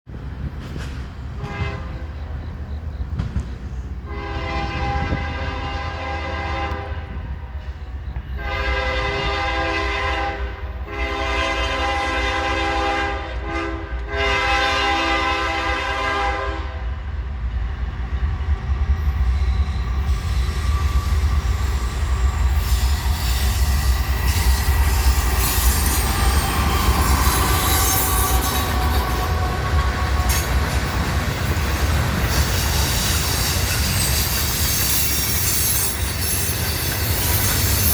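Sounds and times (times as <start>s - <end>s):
train wheels clattering and squealing: 0.1s - 4.1s, 7.1s - 9.4s, 18.1s - 37.9s
locomotive air horn blasts: 1.3s - 2.2s, 4.0s - 7.5s, 8.4s - 16.9s.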